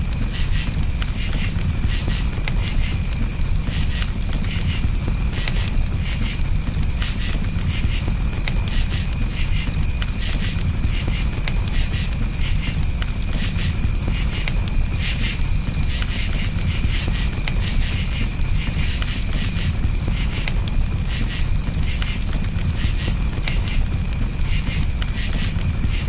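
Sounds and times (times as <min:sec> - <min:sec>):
campfire rumble: 0:00.0 - 0:26.0
crickets chirping: 0:00.0 - 0:26.0
fire crackling: 0:00.0 - 0:26.0.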